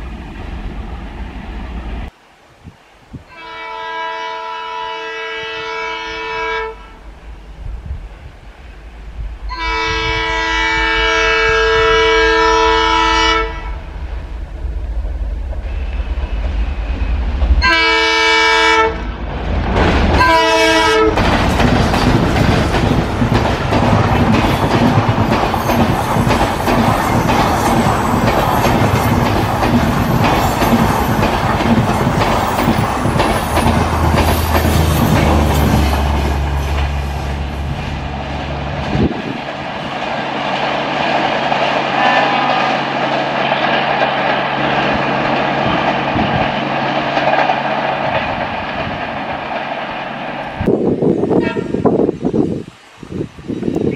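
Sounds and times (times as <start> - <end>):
locomotive horn blasts: 3.3 - 7.0, 9.5 - 13.8, 17.6 - 19.1, 20.2 - 21.2, 51.4 - 52.0
train wheels clattering: 19.6 - 38.0, 38.7 - 50.7.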